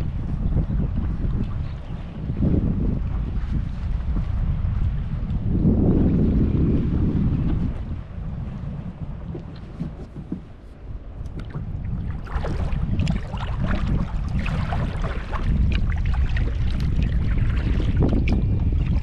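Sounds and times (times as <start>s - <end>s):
water splashing around kayak: 0.0s - 19.0s
wind rumble on microphone: 0.0s - 19.0s.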